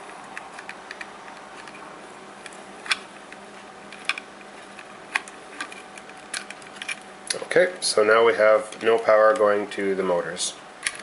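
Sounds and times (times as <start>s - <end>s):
steady low hiss: 0.0s - 11.0s
plastic parts clicking: 0.3s - 1.8s, 2.4s - 7.0s.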